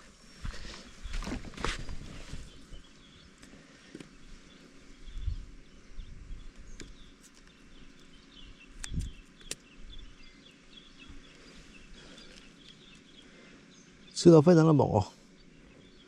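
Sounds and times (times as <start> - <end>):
small birds chirping: 0.0 - 16.0
sharp clicks: 8.8 - 9.7.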